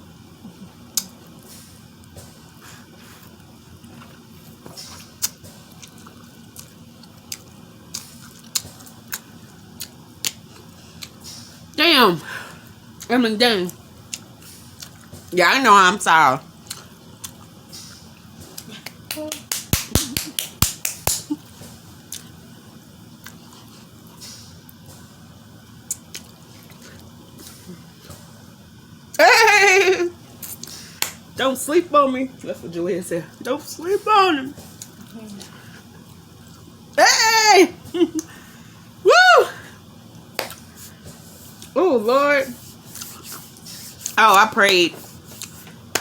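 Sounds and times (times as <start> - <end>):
soft wet chewing: 2.0 - 11.6, 13.7 - 15.3, 16.6 - 19.1, 21.3 - 22.4, 23.2 - 25.2, 25.8 - 28.3, 34.6 - 36.8, 42.6 - 44.2, 45.0 - 46.0
wet mouth clicks and smacks: 5.2 - 9.2, 40.4 - 40.7.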